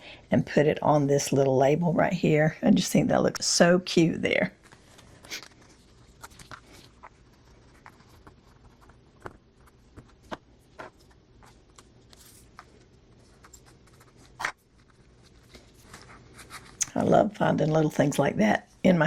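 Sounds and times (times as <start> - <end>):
paper rustling: 4.6 - 16.8.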